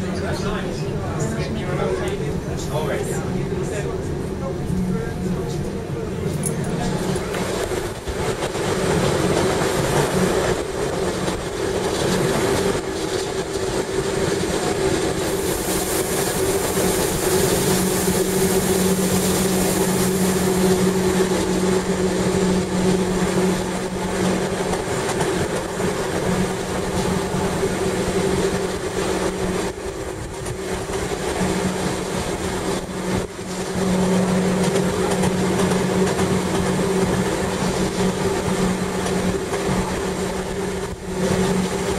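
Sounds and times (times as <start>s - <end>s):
train drive hum: 0.0s - 41.9s
bright hiss: 15.2s - 20.7s.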